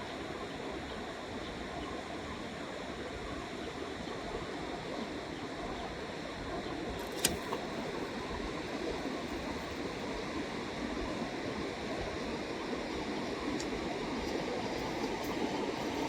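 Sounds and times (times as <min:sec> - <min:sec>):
sharp click: 0:07.0 - 0:07.6.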